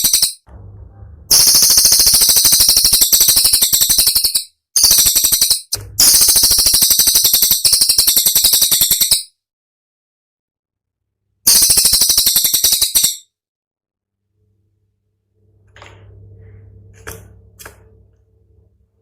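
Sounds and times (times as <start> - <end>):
songbird rapid high-pitched notes: 1.2 - 9.2.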